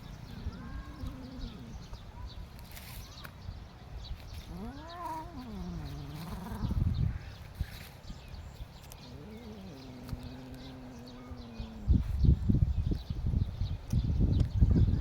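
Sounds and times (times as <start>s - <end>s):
animal calling: 9.0s - 12.2s.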